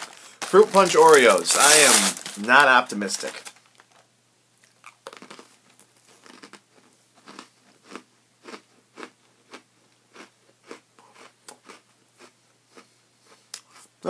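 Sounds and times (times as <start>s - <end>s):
person chewing crunchy cookie: 4.6s - 13.9s.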